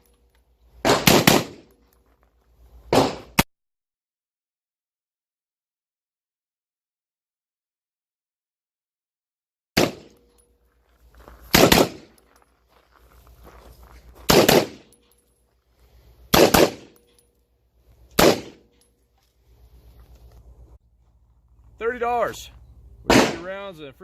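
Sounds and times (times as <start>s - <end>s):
rifle shots with echo: 0.8s - 1.7s, 2.9s - 3.4s, 9.8s - 10.2s, 11.5s - 12.2s, 14.3s - 14.9s, 16.3s - 17.0s, 18.2s - 18.7s, 23.1s - 23.6s.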